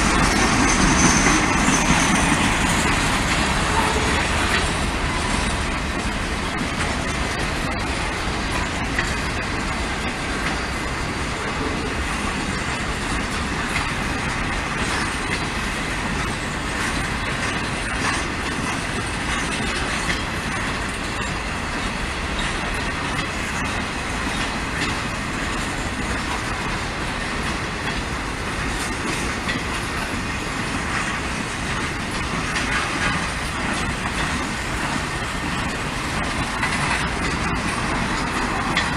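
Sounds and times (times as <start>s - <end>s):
freight train wheels on rails: 0.0s - 38.9s.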